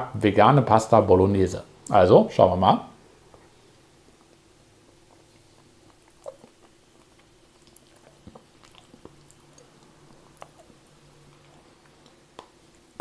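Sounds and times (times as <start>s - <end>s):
faint chewing and mouth sounds: 3.2s - 13.0s.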